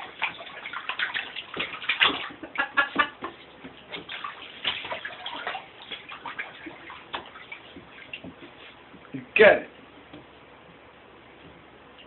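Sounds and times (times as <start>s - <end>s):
dog splashing in bathtub: 0.0s - 9.1s.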